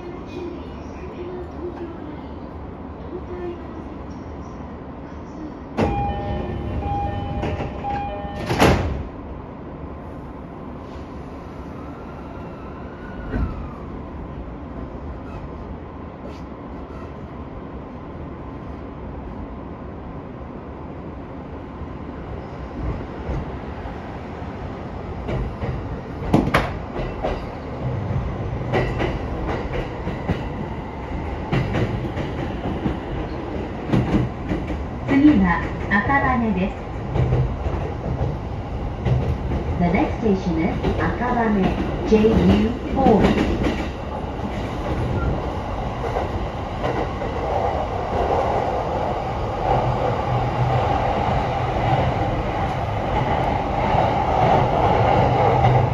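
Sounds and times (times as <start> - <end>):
train wheels rumbling on rail: 0.0 - 19.8, 20.9 - 55.9.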